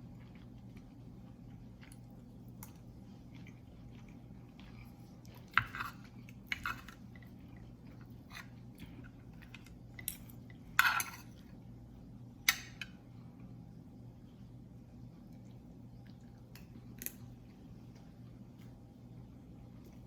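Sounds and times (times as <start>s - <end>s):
soft chewing: 0.0s - 20.0s
cutlery clinking on a plate: 10.8s - 11.3s.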